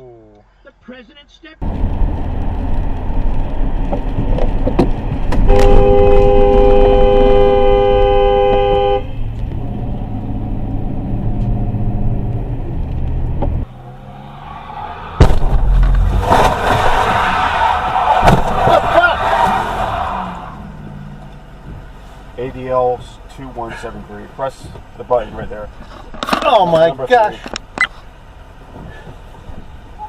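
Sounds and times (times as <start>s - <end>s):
low road rumble: 0.0s - 30.0s
car horn: 5.4s - 9.4s.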